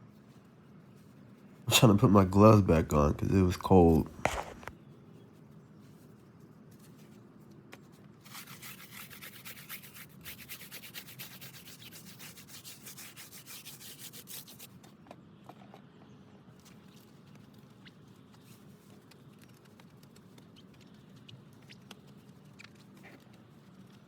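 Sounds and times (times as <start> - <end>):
brush scrubbing a tire: 8.3 - 14.7.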